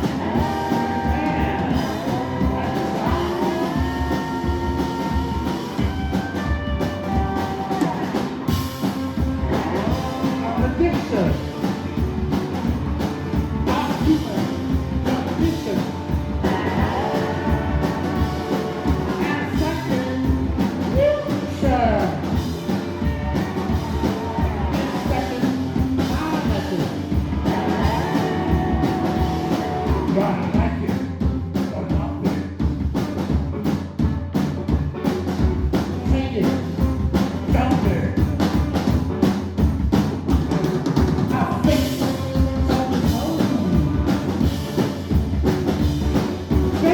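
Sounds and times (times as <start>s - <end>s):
person singing: 0.0s - 11.6s, 13.6s - 31.1s, 41.3s - 44.6s
drum kit beat: 0.0s - 46.9s
rock band playing live: 0.0s - 46.9s.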